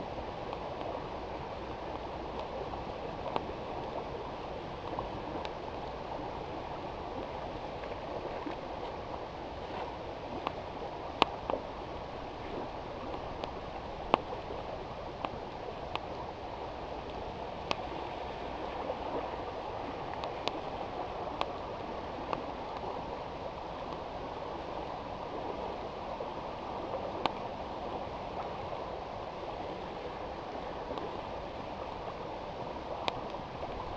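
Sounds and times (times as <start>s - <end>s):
river water rushing: 0.0s - 33.9s.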